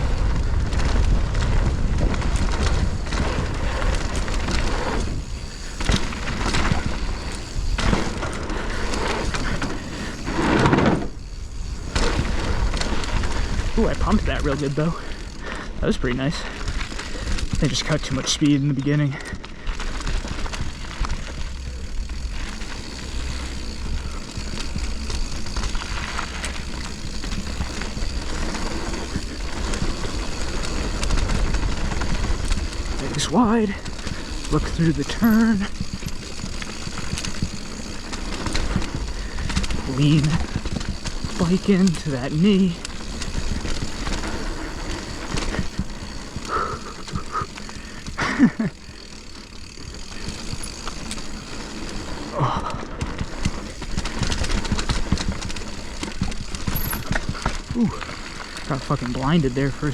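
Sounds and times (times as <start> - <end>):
wind rushing over microphone: 0.0 - 8.1
wind rumbling on microphone: 0.0 - 14.5, 19.8 - 48.3
bike clicks and rattles: 0.0 - 59.9
tyres rolling on dirt: 0.0 - 59.9.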